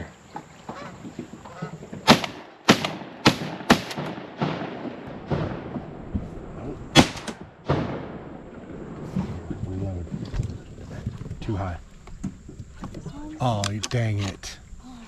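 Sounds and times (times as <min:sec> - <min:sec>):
shotgun blasts: 0:02.0 - 0:06.1, 0:06.9 - 0:08.4.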